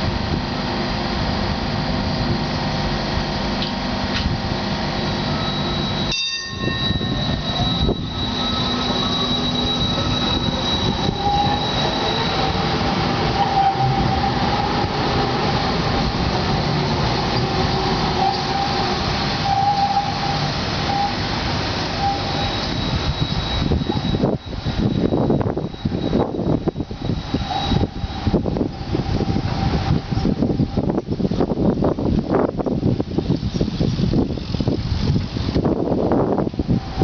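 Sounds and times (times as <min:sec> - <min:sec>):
tram rumbling on rails: 0:00.0 - 0:37.0
high-pitched wheel squeal: 0:05.1 - 0:31.0, 0:36.1 - 0:37.0.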